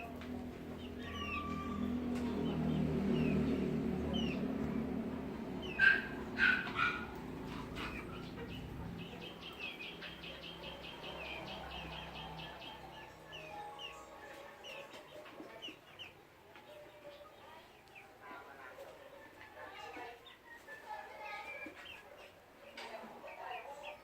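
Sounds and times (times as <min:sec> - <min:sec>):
loud bird calls: 0:00.0 - 0:14.9
small birds chirping: 0:00.0 - 0:24.0.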